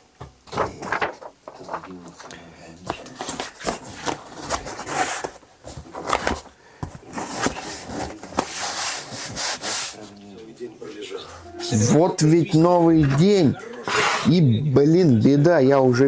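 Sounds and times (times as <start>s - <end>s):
cardboard box scraping and rubbing: 3.2s - 6.4s, 7.0s - 10.0s.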